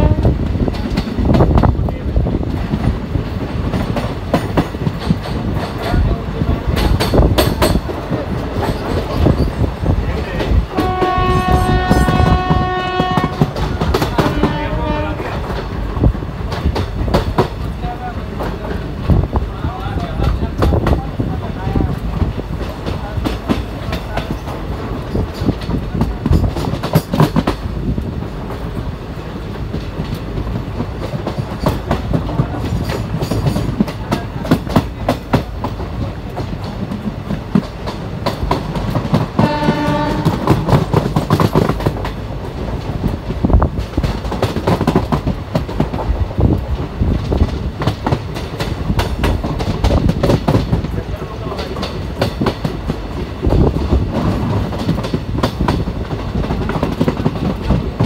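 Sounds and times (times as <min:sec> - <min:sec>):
train horn: 0:00.0 - 0:00.5, 0:10.7 - 0:15.6, 0:39.4 - 0:40.8
train rumble and wind: 0:00.0 - 0:58.0
wheels clicking over rail joints: 0:00.0 - 0:58.0.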